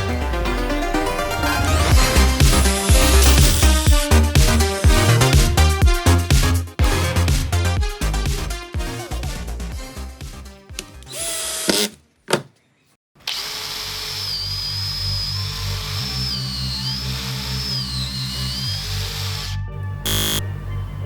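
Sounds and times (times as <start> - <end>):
power tool motor whining: 1.9 - 4.0, 11.1 - 12.0, 13.2 - 20.5.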